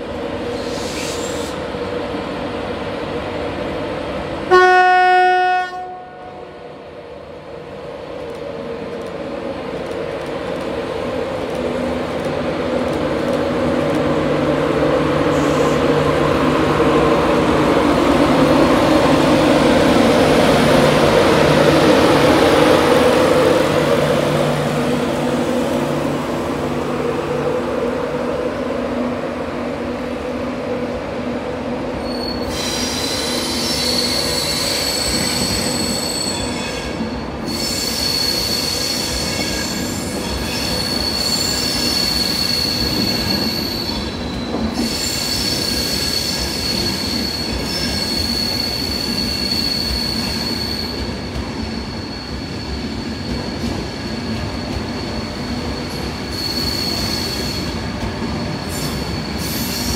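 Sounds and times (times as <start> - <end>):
train passing: 0.0 - 59.9
high-pitched wheel squeal: 32.0 - 59.9.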